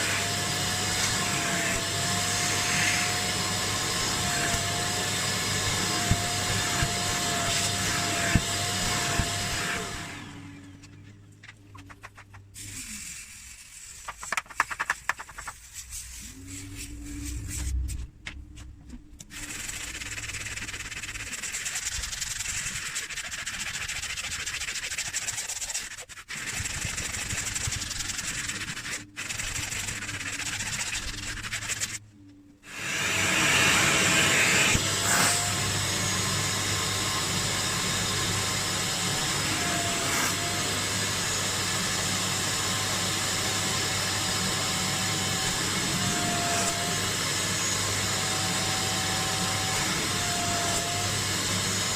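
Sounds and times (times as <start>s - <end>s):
extraction vacuum motor whining: 0.0s - 11.1s, 32.6s - 51.9s.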